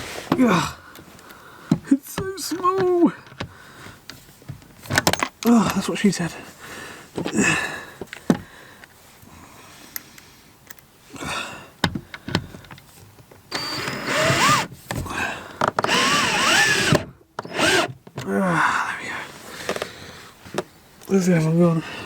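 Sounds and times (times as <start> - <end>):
drill driver motor whine: 13.5 - 14.7, 15.8 - 17.9.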